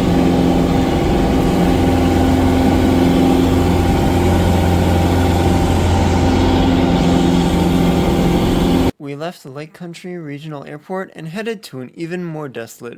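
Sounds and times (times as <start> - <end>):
aircraft propeller engine drone: 0.0 - 8.9.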